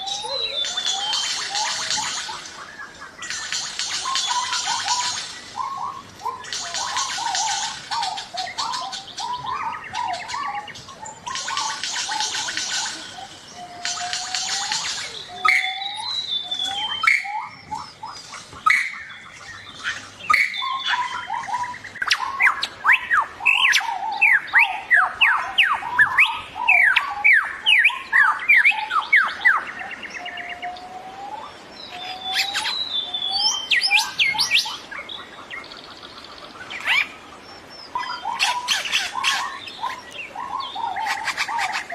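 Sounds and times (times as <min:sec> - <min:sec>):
other forest birds: 0:00.0 - 0:41.9
rising whistled bird calls: 0:00.0 - 0:41.9.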